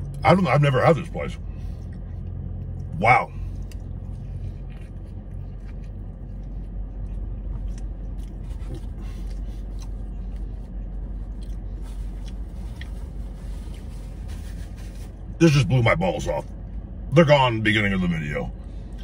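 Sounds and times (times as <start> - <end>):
low hum in car cabin: 0.0 - 19.0
man chewing food: 1.4 - 15.3.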